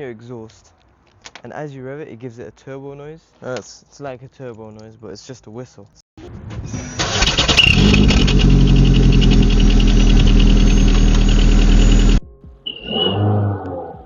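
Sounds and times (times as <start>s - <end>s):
car engine running: 7.0s - 12.2s
high turbo whistle: 9.2s - 13.2s.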